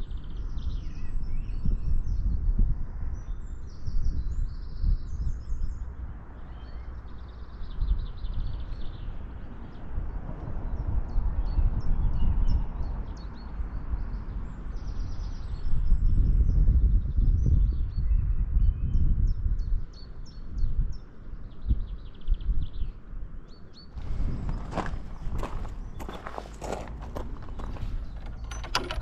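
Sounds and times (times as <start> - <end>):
wind buffeting microphone: 0.0 - 29.0
small birds chirping: 10.7 - 29.0.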